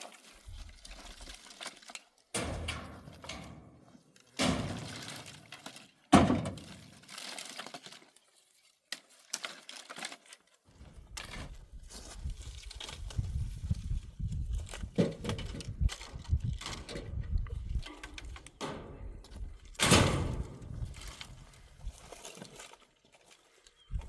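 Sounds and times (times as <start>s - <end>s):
dry branches snapping: 4.2s - 8.2s, 19.2s - 23.3s.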